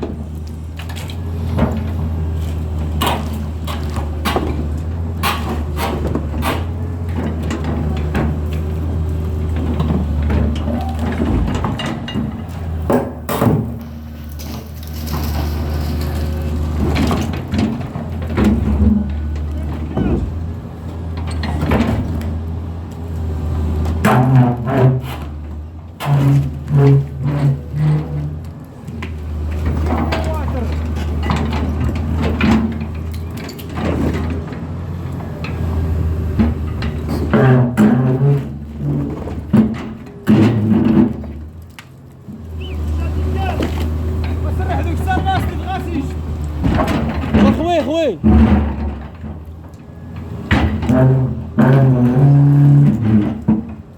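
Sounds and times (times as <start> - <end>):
heavy machine engine droning: 0.0 - 53.9
sharp knocks and clanks: 2.8 - 8.7, 9.5 - 20.4, 43.6 - 53.9.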